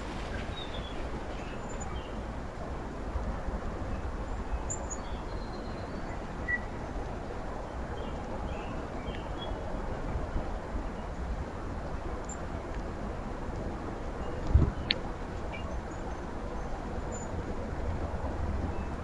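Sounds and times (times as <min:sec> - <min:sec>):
low outdoor rumble: 0:00.0 - 0:03.5.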